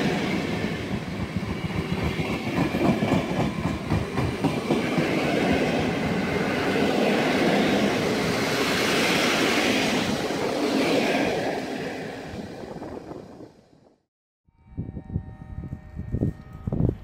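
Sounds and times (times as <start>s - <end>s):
train wheels running on rails: 0.0s - 13.1s.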